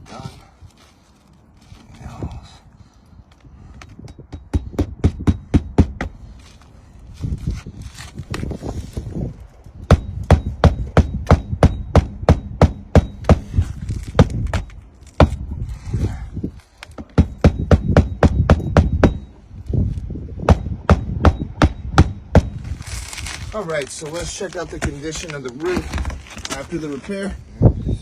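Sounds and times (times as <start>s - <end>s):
hammer striking roofing nails: 4.1s - 6.2s, 9.9s - 13.6s, 17.0s - 19.3s, 20.4s - 22.6s.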